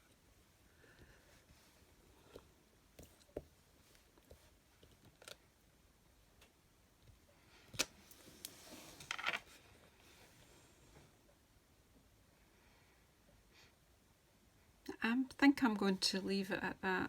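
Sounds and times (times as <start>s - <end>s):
rustling scrape: 8.1s - 10.4s.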